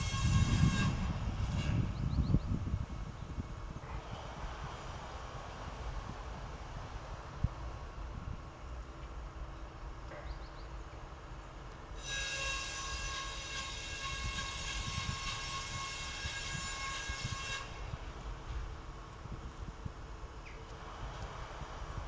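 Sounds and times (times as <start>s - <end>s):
train horn blast: 0.0s - 2.0s, 12.0s - 18.0s.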